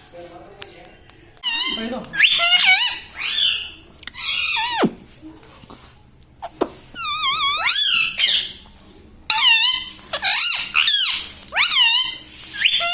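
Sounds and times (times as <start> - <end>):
parrot squeaky calls: 1.4 - 4.9, 6.4 - 8.7, 9.3 - 12.9.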